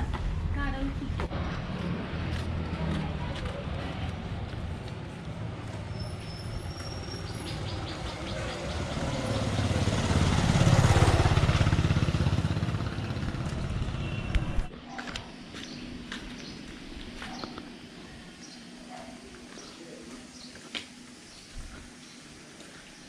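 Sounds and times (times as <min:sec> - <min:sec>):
vehicle engine passing: 0:00.0 - 0:14.8.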